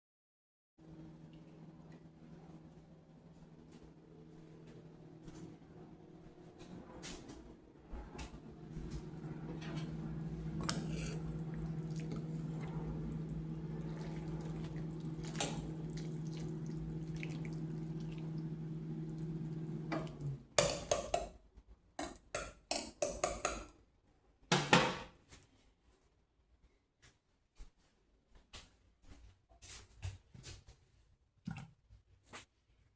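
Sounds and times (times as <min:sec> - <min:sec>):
appliance hum: 0:00.8 - 0:21.4.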